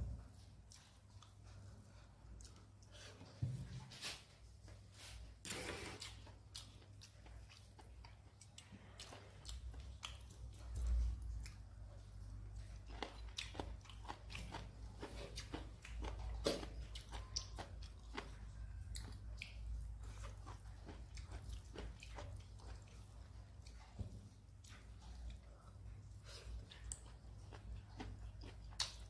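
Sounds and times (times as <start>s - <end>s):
steady low hum: 0.0s - 5.4s
person chewing and crunching: 0.6s - 3.4s, 5.0s - 29.0s.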